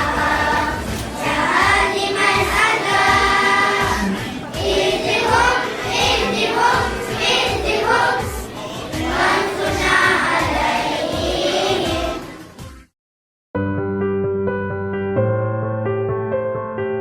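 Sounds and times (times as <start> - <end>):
group of voices singing: 0.0 - 12.4.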